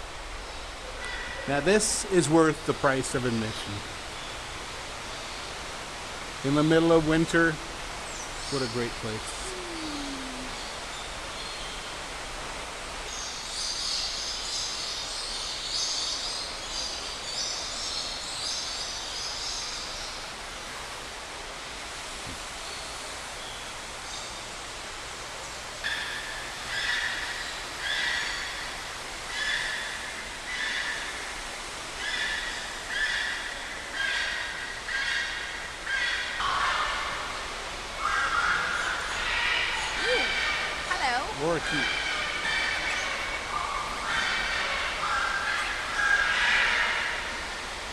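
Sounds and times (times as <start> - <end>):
waterfall rushing: 5.6 - 11.3
birds calling: 38.0 - 47.5.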